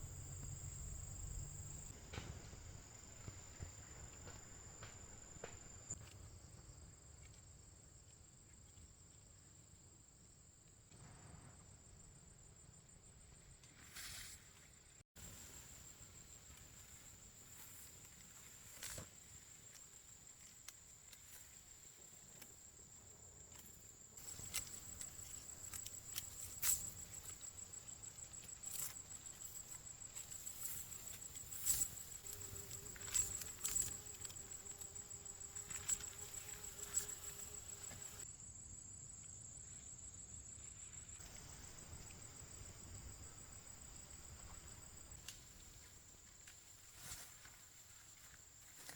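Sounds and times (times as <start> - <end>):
insects trilling: 12.7 - 48.9.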